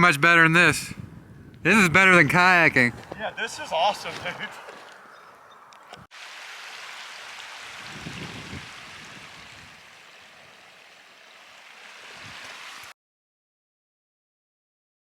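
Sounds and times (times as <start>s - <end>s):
mountain stream rushing water: 6.1s - 12.9s.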